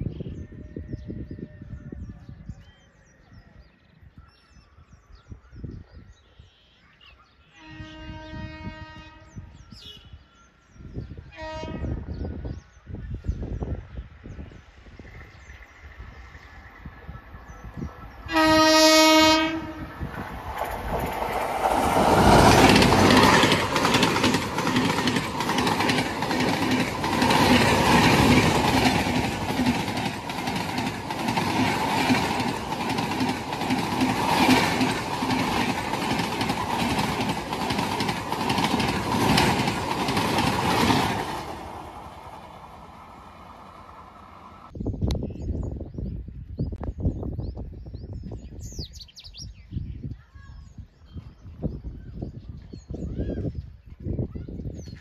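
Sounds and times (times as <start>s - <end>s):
locomotive horn: 7.6s - 10.2s, 11.3s - 12.0s, 18.3s - 20.0s
train rushing past: 13.6s - 44.8s.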